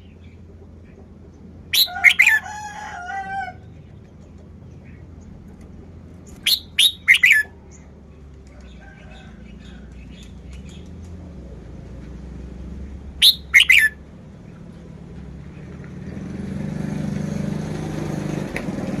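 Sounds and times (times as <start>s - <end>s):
bird giving sharp notes: 1.7s - 2.5s, 6.3s - 7.6s, 13.2s - 14.0s.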